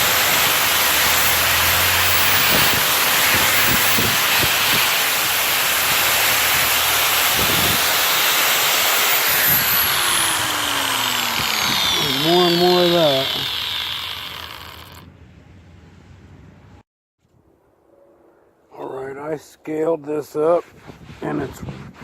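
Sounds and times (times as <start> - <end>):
power buffer grinding metal: 0.0 - 15.0.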